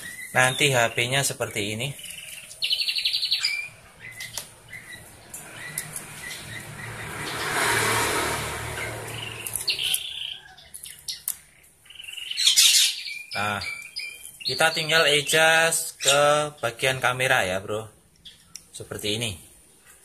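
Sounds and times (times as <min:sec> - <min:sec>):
small birds chirping: 0:00.0 - 0:20.0
passing vehicle: 0:03.7 - 0:10.8.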